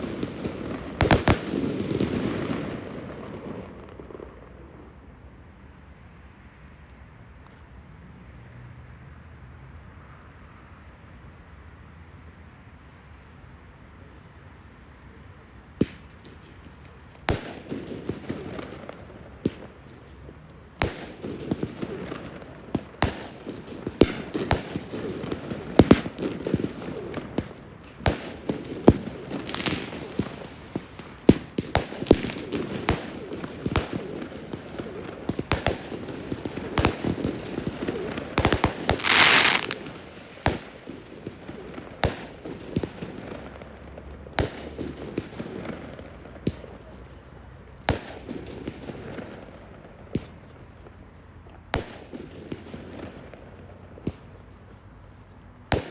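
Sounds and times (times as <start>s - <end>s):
fireworks bursting with sharp bangs: 0.0s - 4.9s, 15.8s - 55.9s
low continuous rumble: 11.3s - 55.9s.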